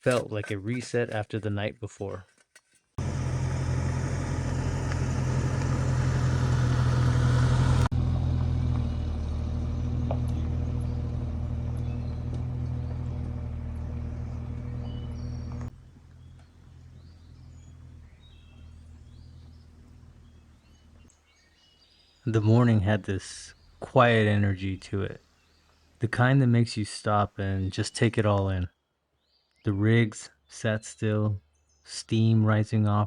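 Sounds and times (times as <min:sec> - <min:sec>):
vehicle engine running: 0:03.0 - 0:21.1
faint bird chirps: 0:14.6 - 0:22.5.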